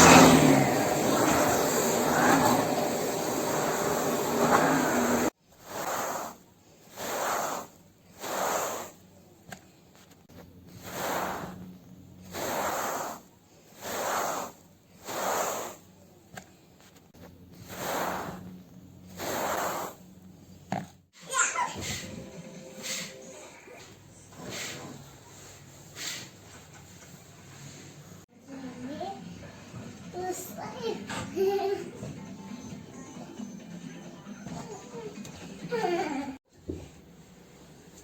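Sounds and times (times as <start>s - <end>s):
loud steady rushing noise: 0.0s - 5.3s
window glass swishing strokes: 0.0s - 9.0s, 10.7s - 15.8s, 17.6s - 20.1s.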